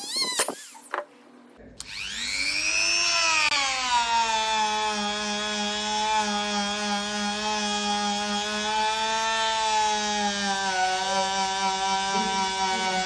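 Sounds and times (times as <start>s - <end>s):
power tool motor whining: 1.8s - 13.0s.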